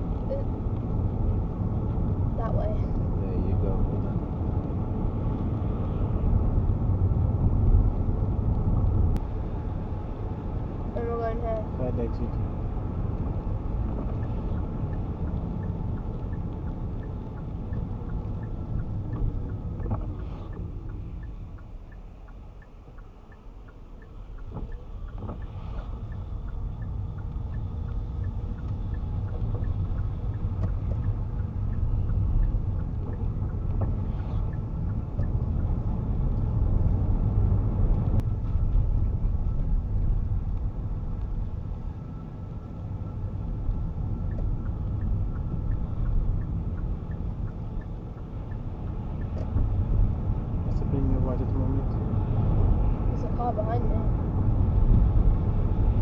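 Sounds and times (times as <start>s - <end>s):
car engine and road rumble: 0.0s - 56.0s
indicator ticking: 14.1s - 35.8s, 43.8s - 49.5s.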